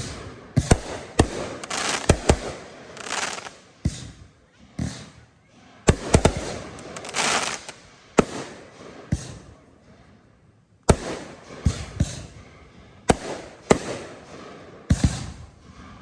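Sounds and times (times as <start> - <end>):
fireworks crackling: 0.0 - 4.1, 5.9 - 9.4
fireworks bangs: 0.0 - 4.2, 5.9 - 9.5, 10.9 - 12.4, 13.1 - 15.5.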